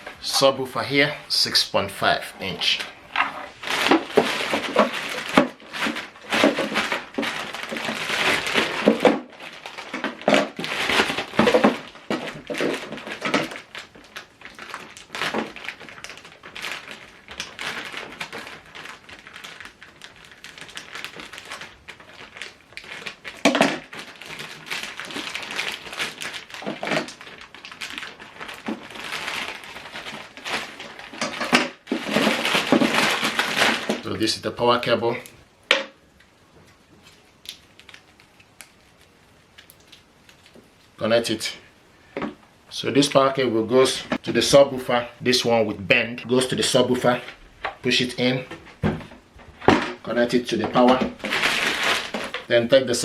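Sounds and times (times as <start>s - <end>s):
packaging rustling and crinkling: 2.4s - 34.3s, 36.1s - 41.0s, 46.3s - 53.0s
knocks and thuds: 48.6s - 50.0s.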